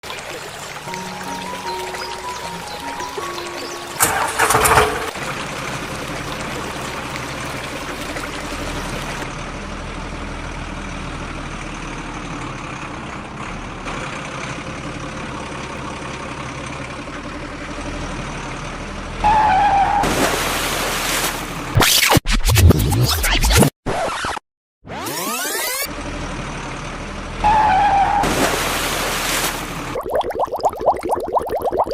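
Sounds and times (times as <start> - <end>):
truck engine running: 0.4 - 19.3, 25.9 - 27.5.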